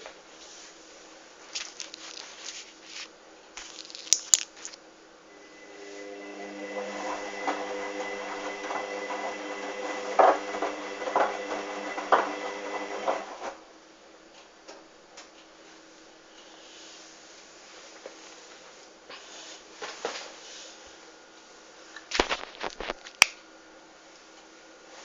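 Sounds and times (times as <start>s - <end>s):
washing machine drum motor whine: 5.2s - 13.8s.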